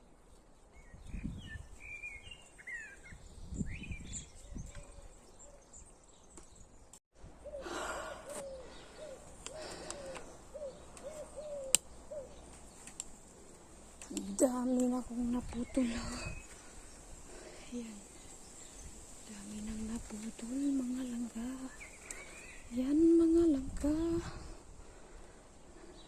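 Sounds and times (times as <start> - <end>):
birds chirping: 0.0 - 26.0
low hoot-like bird notes: 7.4 - 12.4.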